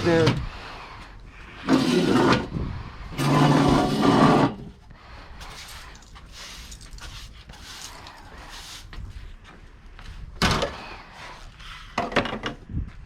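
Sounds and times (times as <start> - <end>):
broom swishing across floor: 5.4 - 9.3.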